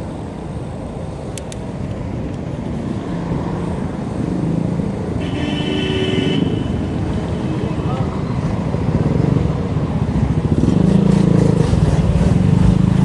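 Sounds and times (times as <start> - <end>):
bicycle road rumble: 0.0 - 13.0.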